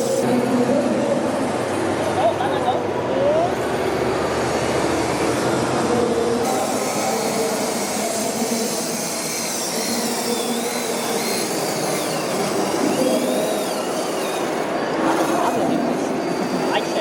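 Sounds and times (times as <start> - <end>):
small motor whirring: 6.4 - 17.0.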